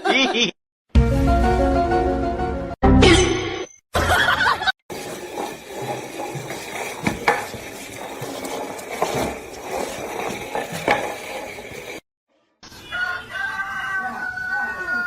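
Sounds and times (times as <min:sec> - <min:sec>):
scraping and rattling: 0:04.9 - 0:12.0.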